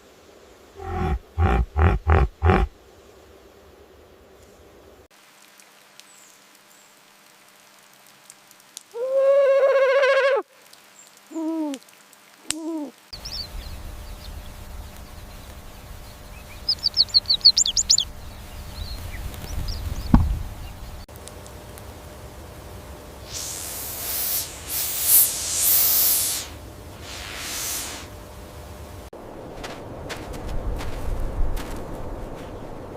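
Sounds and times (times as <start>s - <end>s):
short hooting calls: 0.8s - 2.7s
high bird chirps: 16.3s - 18.1s.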